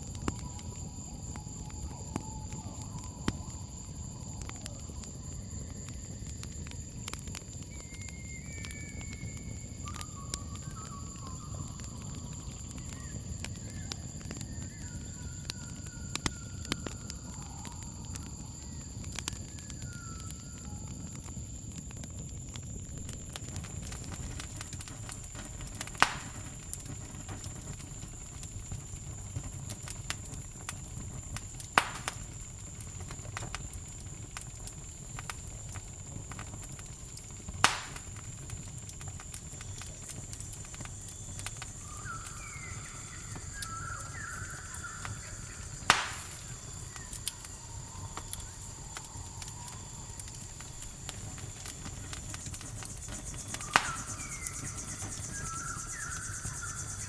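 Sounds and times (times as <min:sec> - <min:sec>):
campfire crackling: 0:00.0 - 0:57.0
crickets chirring: 0:00.0 - 0:57.0
sharp loud fire pops: 0:23.6 - 0:36.8, 0:37.4 - 0:42.7, 0:43.3 - 0:47.4, 0:48.0 - 0:56.1.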